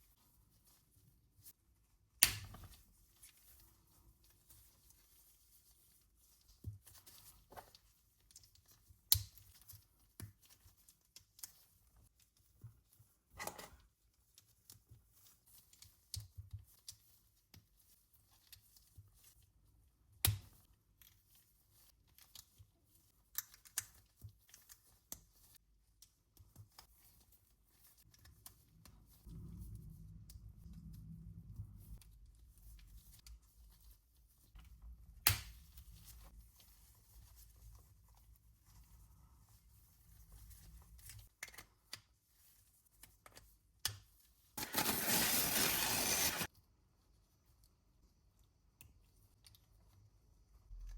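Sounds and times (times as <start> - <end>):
low steady rumble: 29.2 - 32.0.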